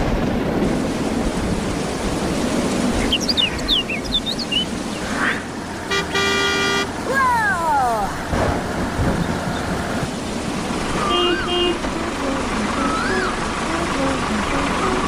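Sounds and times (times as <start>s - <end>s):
rushing rumble: 0.0s - 15.0s
horn toot: 5.9s - 7.0s, 11.0s - 12.4s
falling whistle-like glides: 12.6s - 13.5s.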